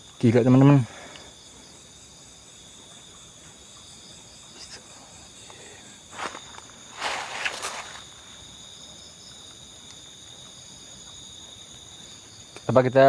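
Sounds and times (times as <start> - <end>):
crickets and insects trilling: 0.0 - 13.0
short rustle: 6.1 - 8.4.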